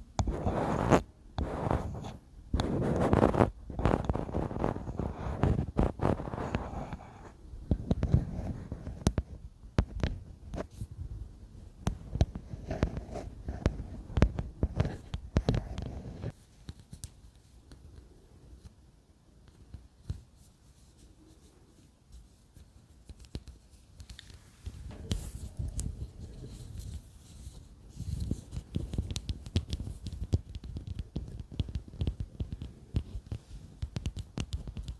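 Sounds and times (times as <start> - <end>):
tapping and scratching on objects: 0.1 - 10.7, 11.8 - 17.8, 23.0 - 34.9
rustling: 19.6 - 34.9.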